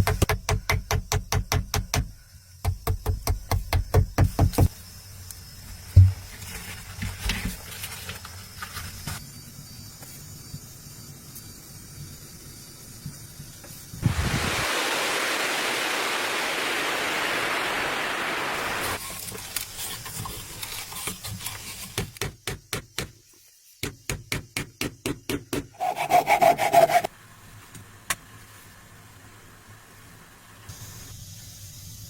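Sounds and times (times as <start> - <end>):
steady rushing noise: 14.0 - 19.0
hand saw cutting wood: 25.7 - 27.1.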